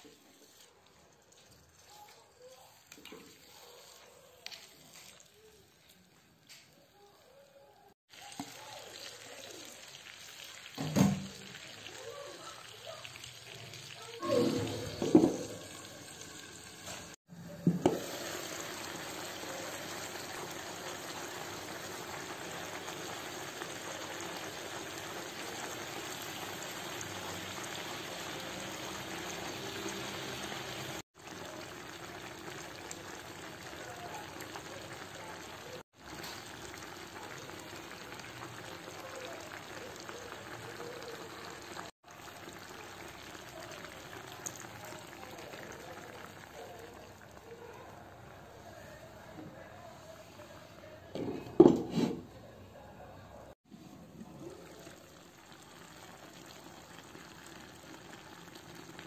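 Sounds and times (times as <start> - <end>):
meat and onions sizzling in oil: 0.0 - 7.2, 8.0 - 49.1, 54.5 - 59.0.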